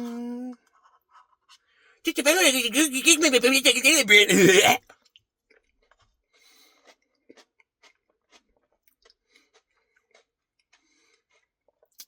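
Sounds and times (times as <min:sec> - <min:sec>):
faint chewing: 0:06.8 - 0:12.0.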